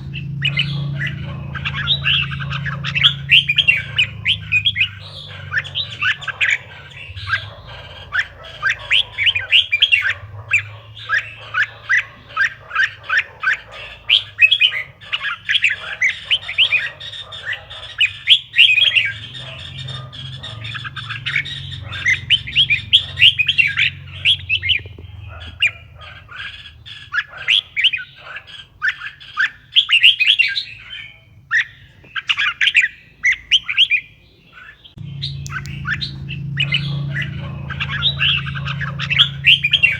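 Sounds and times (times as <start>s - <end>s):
bird chirping song: 0.0s - 39.9s
low hum: 35.0s - 39.9s.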